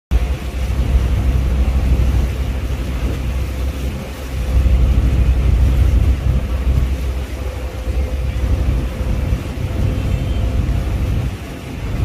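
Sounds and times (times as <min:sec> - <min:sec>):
ferry engine rumble: 0:00.1 - 0:12.0
wind buffeting microphone: 0:00.1 - 0:12.0.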